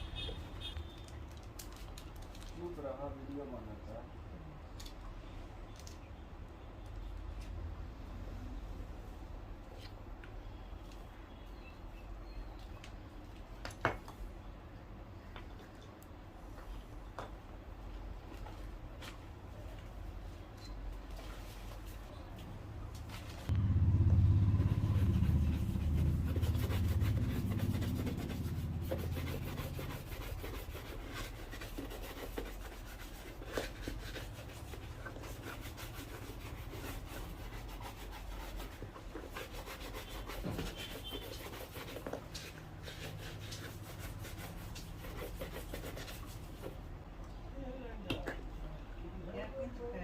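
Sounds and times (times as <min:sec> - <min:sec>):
low rumble: 0:23.5 - 0:29.9
rubbing and scraping on shoe: 0:24.5 - 0:46.8.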